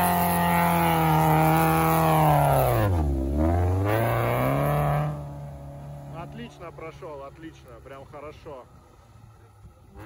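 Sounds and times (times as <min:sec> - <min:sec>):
race car engine revving: 0:00.0 - 0:07.6.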